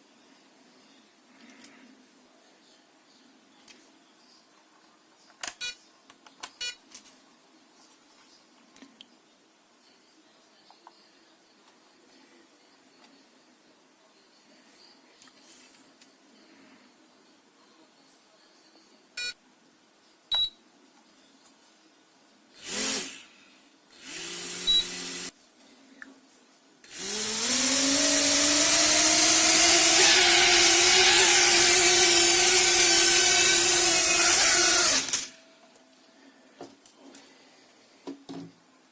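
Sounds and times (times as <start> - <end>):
drone motors whining: 26.9 - 35.3.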